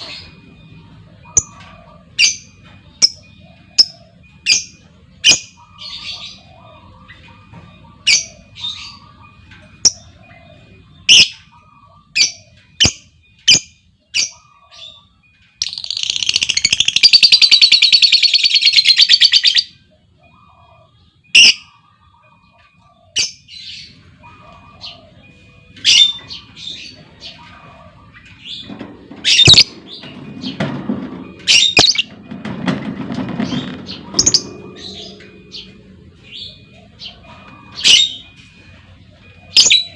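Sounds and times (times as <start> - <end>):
birds chirping: 0.0 - 39.9
bird chattering trill: 11.0 - 19.7, 33.5 - 38.3.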